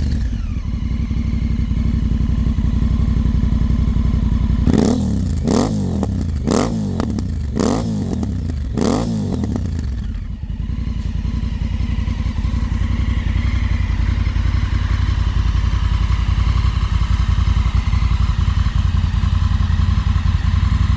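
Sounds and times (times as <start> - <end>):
motorcycle engine revving and idling: 0.0 - 20.9.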